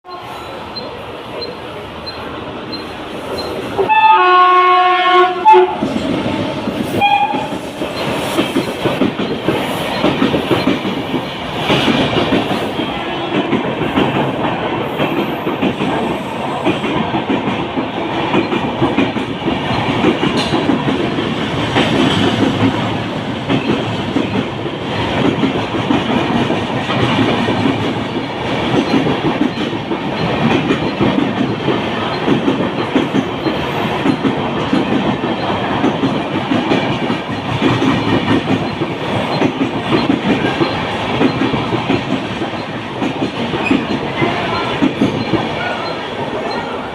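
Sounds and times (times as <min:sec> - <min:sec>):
train running past rumble: 0:00.1 - 0:46.9
wheels clacking over rail joints: 0:00.1 - 0:46.9
train horn blasts: 0:03.8 - 0:05.8, 0:07.0 - 0:07.5.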